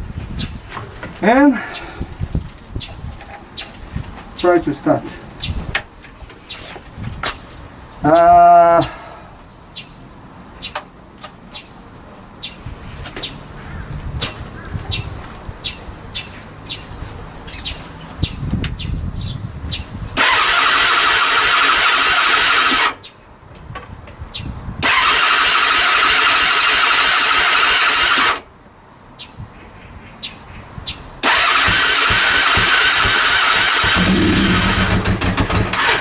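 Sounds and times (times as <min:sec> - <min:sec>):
engine cranking on starter: 0:20.2 - 0:23.0, 0:24.8 - 0:28.4, 0:31.2 - 0:36.0.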